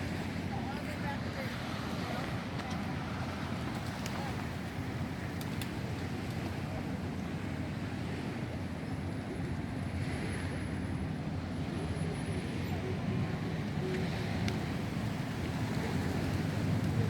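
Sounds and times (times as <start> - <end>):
low outdoor rumble: 10.5 - 17.0.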